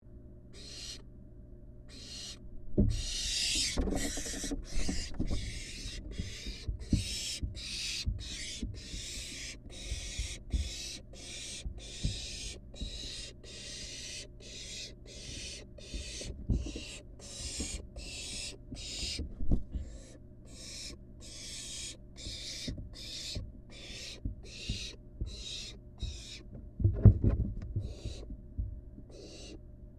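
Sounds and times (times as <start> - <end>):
owl chick hissing calls: 0.5 - 1.0, 1.9 - 19.2, 19.8 - 26.4, 27.8 - 28.3, 29.1 - 29.6
thumps and scuffles: 26.5 - 28.7.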